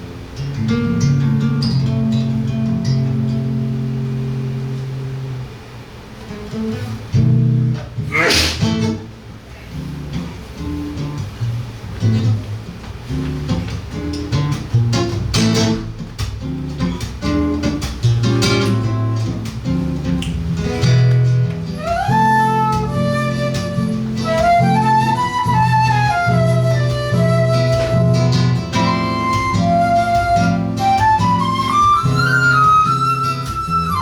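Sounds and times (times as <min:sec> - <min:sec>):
guitar plucked chords: 0:00.0 - 0:09.2, 0:09.8 - 0:34.0
flute melody: 0:21.6 - 0:34.0.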